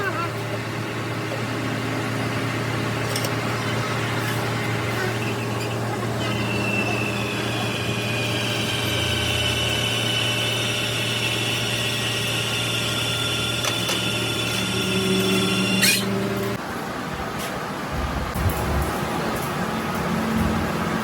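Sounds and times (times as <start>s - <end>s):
machine humming: 0.0s - 16.7s
high-pitched machine whine: 0.0s - 17.2s, 17.9s - 21.0s.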